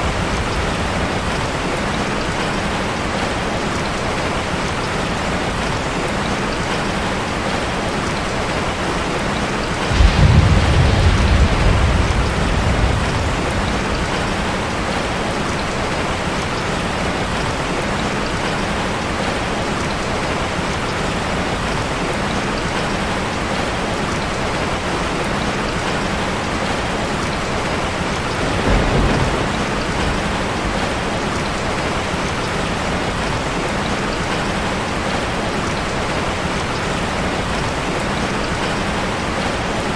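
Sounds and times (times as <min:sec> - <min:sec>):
thunder rumbling: 0:00.0 - 0:02.8, 0:09.4 - 0:17.6, 0:27.7 - 0:33.5
rain on a metal roof: 0:00.0 - 0:39.9.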